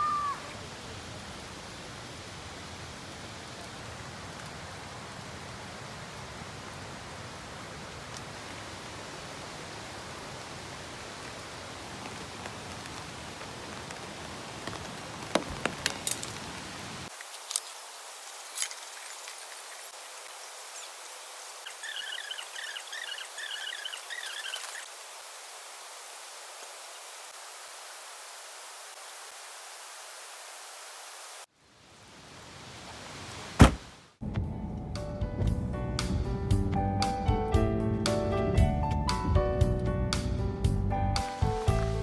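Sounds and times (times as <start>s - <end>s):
rain falling: 0.0s - 34.2s
repeated chirping: 21.7s - 24.8s.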